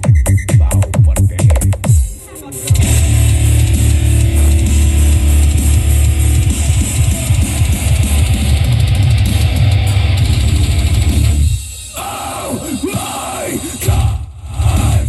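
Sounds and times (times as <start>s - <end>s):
heavy bass music with guitar and drums: 0.0s - 15.0s.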